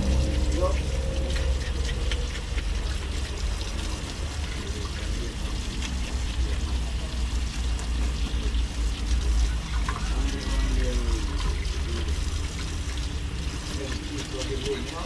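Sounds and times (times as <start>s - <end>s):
steady low rumble: 0.0s - 7.1s.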